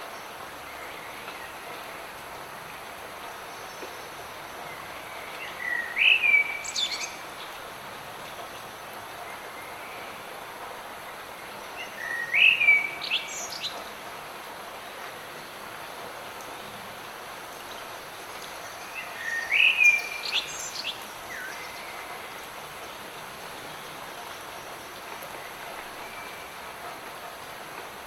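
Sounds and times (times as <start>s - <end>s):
light rain hissing: 0.0s - 28.0s
songbird singing: 3.4s - 7.6s, 11.4s - 14.0s, 17.4s - 26.6s.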